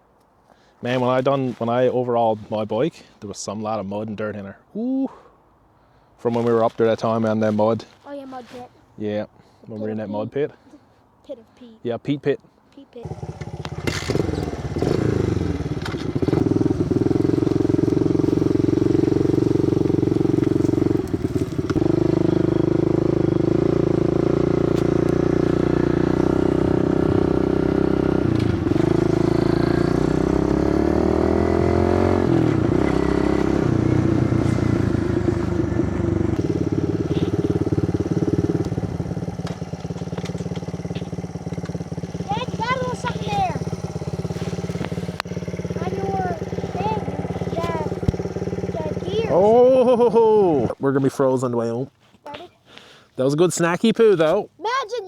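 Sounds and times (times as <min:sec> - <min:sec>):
small motorbike engine running: 0:13.0 - 0:50.6.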